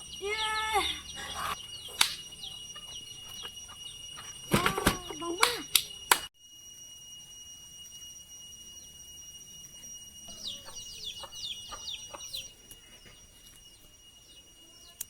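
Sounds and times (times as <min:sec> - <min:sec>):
steady high-pitched whine: 0:00.0 - 0:15.0.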